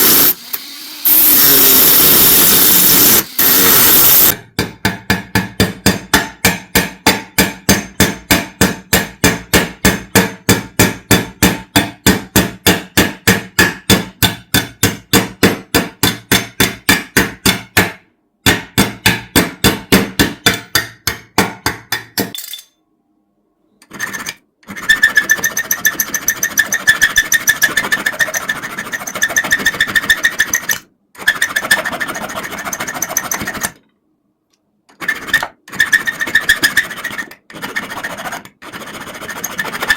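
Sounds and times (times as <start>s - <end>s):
hammer tapping metal: 3.8s - 22.8s
rasping rub on metal: 35.0s - 39.9s.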